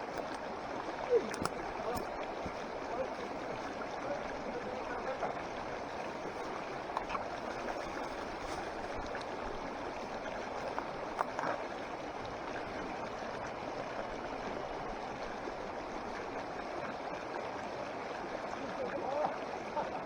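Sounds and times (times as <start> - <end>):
mountain stream rushing: 0.0 - 20.0
faint clicks: 10.6 - 11.6.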